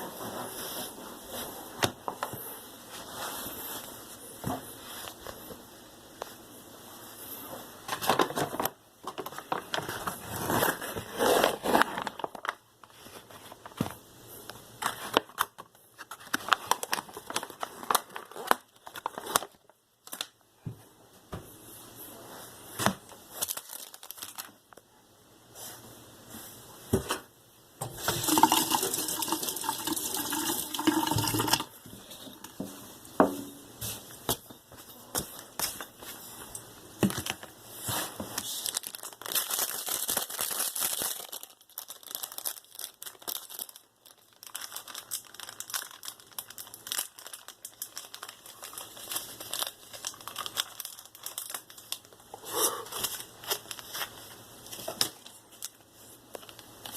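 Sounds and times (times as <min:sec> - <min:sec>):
water pouring into container: 0:28.0 - 0:31.8.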